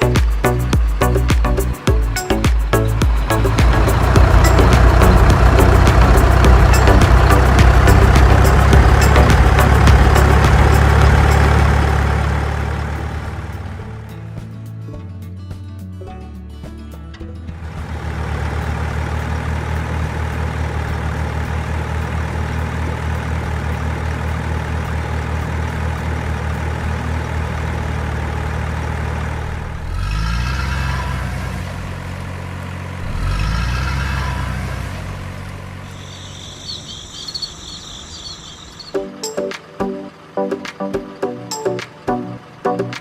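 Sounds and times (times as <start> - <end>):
diesel engine idling and revving: 0.0 - 14.8, 17.2 - 43.0
high chirping: 35.8 - 42.8.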